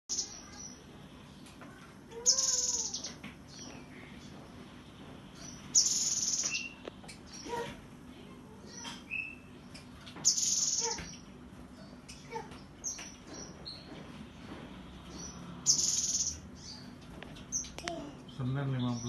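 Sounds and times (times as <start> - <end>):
bird high-pitched trills: 0.1 - 0.8, 2.2 - 3.8, 5.4 - 7.6, 9.1 - 11.2, 15.2 - 17.8.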